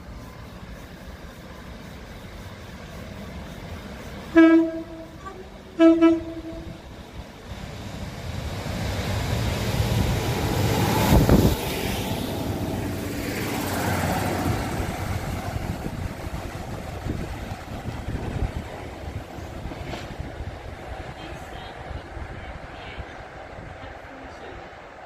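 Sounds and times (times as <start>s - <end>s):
train passing rumble: 0.0s - 25.0s
train horn blast: 4.3s - 6.8s.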